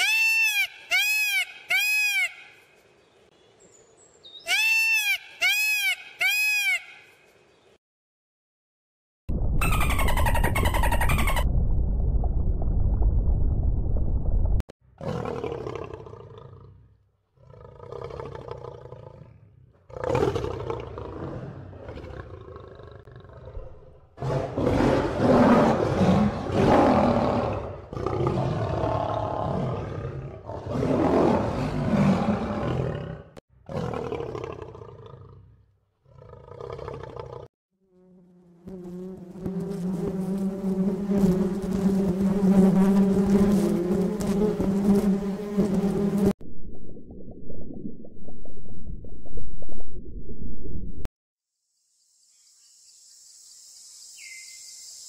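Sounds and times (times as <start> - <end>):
lion roaring and growling: 15.0 - 16.8, 17.4 - 37.5
bee buzzing: 37.8 - 46.4.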